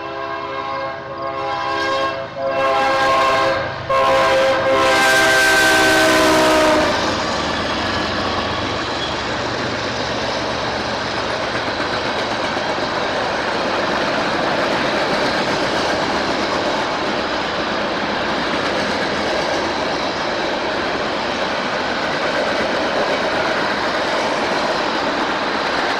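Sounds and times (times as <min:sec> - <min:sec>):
locomotive air horn: 0:00.0 - 0:07.2
train passing: 0:00.0 - 0:25.9.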